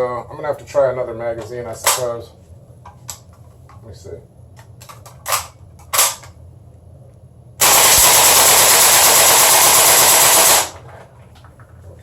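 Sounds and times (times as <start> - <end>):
airsoft gun full-auto burst: 7.6 - 10.8.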